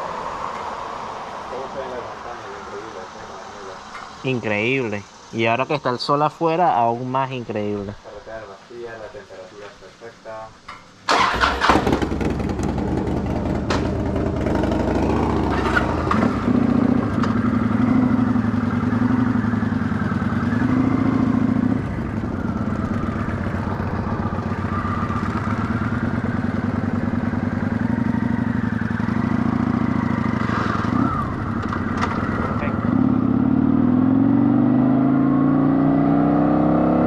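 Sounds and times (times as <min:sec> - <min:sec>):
motorcycle engine running: 0:11.1 - 0:35.1.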